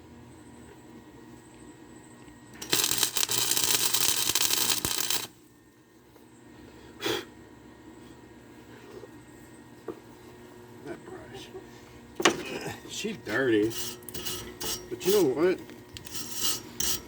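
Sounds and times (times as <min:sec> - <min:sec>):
arc welder crackling: 0:02.4 - 0:05.5, 0:13.3 - 0:17.0.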